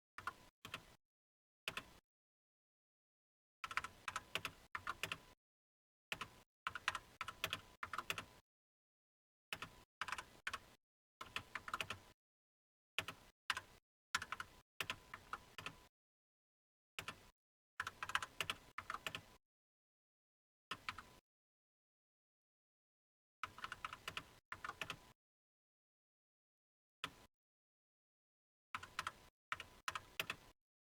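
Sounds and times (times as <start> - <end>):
computer keyboard typing: 3.6 - 5.2, 6.1 - 8.3, 9.6 - 12.0, 13.0 - 15.8, 17.8 - 19.3, 23.5 - 25.0, 28.8 - 30.5.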